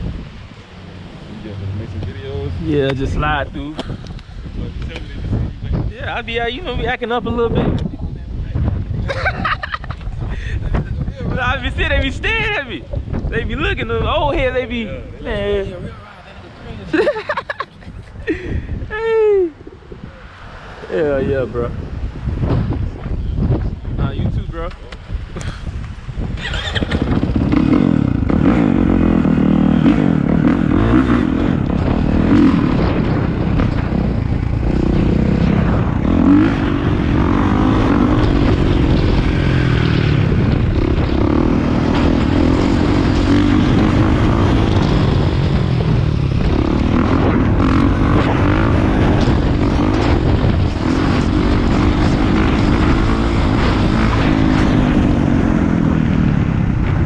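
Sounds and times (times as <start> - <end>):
dirt bike engine revving: 26.4 - 57.0.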